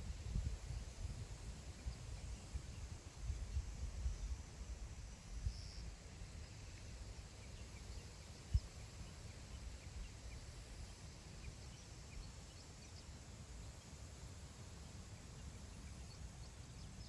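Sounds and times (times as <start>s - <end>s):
wind rumbling on microphone: 0.0s - 5.6s.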